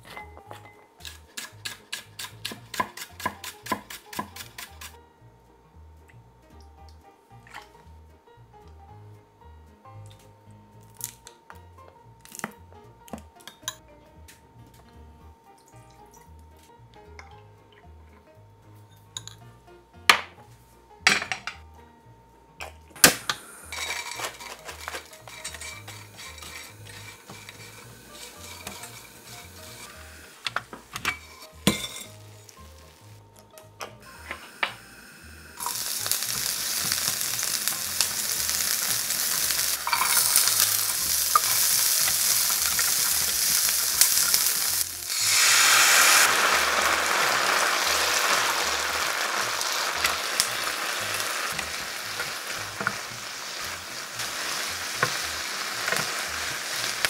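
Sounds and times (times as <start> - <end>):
food sizzling in hot oil: 1.0 - 5.0, 23.0 - 33.2, 34.0 - 57.0
utensils clinking on dishes: 23.3 - 32.2, 38.8 - 44.8.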